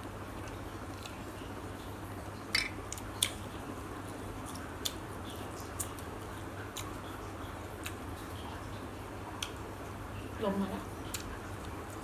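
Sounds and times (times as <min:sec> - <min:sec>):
chewing smacks: 0:07.8 - 0:08.0.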